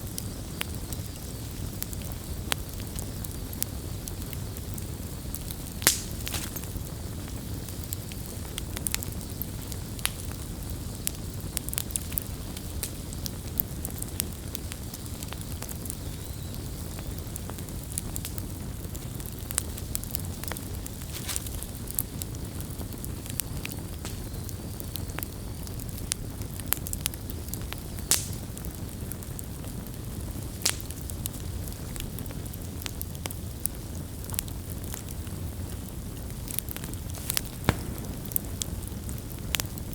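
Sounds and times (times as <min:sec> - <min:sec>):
campfire crackling: 0:00.0 - 0:39.9
wood popping and snapping: 0:05.8 - 0:06.7, 0:36.5 - 0:39.8.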